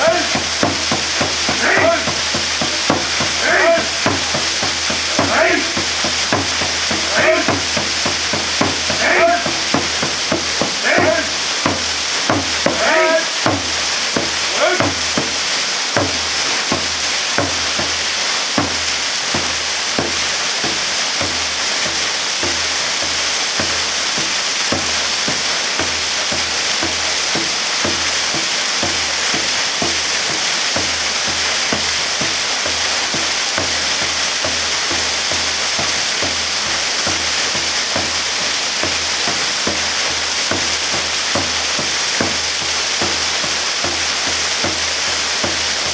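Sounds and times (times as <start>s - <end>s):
person speaking: 0.0s - 0.6s, 1.2s - 11.9s, 12.6s - 15.2s
waterfall pouring and splashing: 0.0s - 45.9s.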